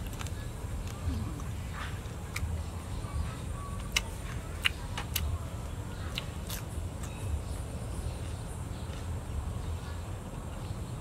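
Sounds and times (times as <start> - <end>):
person chewing: 0.0 - 2.6, 3.8 - 5.3, 6.1 - 7.2.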